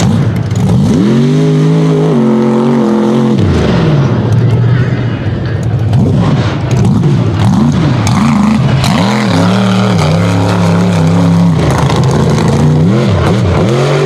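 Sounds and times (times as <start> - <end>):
truck engine revving loud: 0.0 - 4.9, 5.9 - 14.0.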